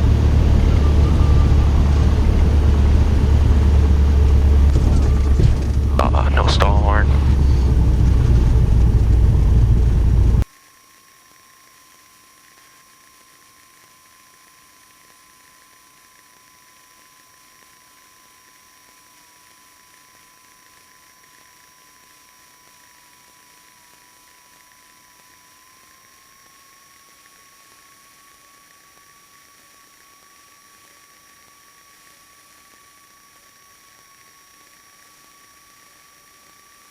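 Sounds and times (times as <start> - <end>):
small plane engine and airflow: 0.0 - 10.4
steady high whine: 0.0 - 36.9.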